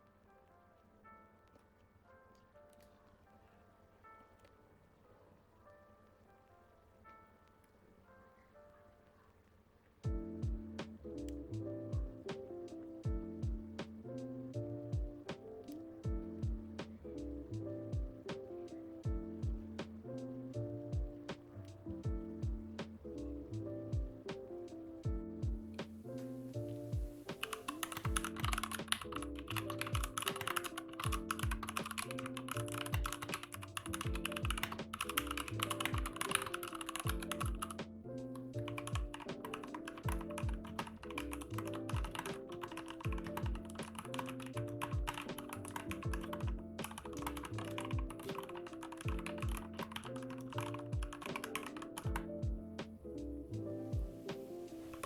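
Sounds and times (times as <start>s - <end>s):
background music with beat: 10.0s - 55.0s
mechanical keyboard typing: 27.4s - 37.8s, 38.4s - 52.3s.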